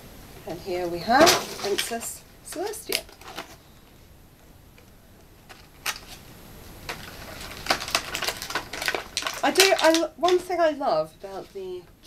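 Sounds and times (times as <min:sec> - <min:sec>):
packaging rustling: 0:01.2 - 0:03.6, 0:05.4 - 0:06.2, 0:06.8 - 0:11.7.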